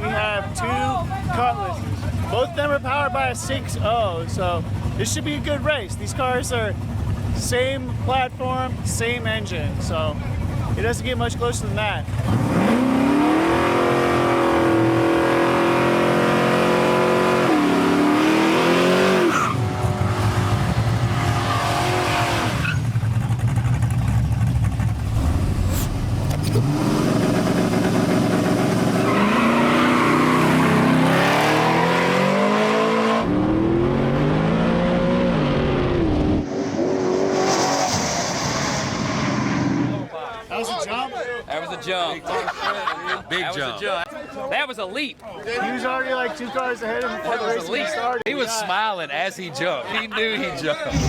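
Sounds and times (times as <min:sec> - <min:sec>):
race cars accelerating: 0:12.0 - 0:40.1.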